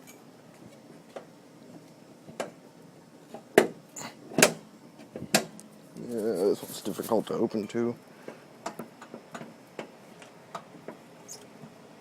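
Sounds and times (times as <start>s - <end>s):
metal clunks of truck hood: 3.6s - 4.6s.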